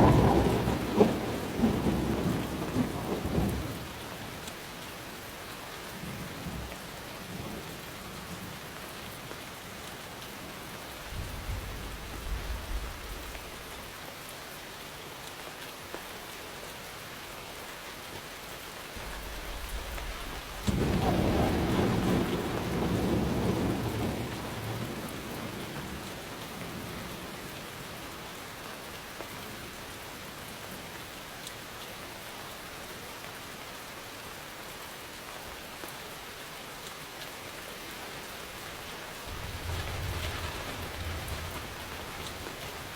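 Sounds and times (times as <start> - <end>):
thunder rumbling: 0.0 - 3.9, 11.0 - 13.7, 19.0 - 27.1, 38.7 - 42.9
rain falling: 0.0 - 42.9.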